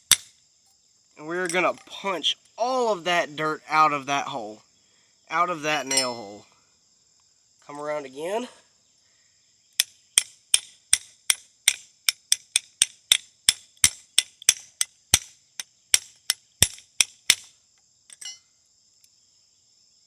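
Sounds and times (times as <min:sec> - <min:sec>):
crickets chirping: 0:00.0 - 0:20.0
hammer striking metal: 0:05.9 - 0:06.4.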